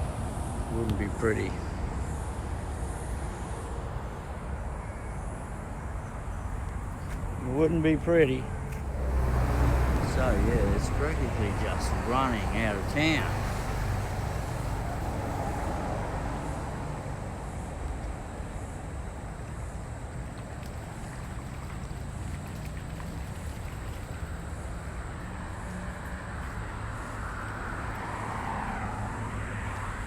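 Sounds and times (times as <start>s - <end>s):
floodwater rushing through creek: 7.2s - 30.0s.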